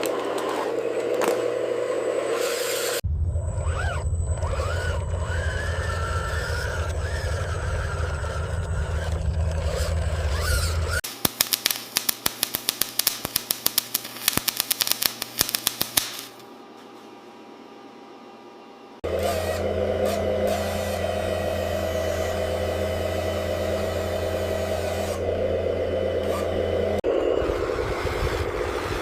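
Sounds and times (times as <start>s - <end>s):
toy electric motor whining: 2.3s - 3.0s, 3.6s - 11.0s, 19.0s - 25.3s.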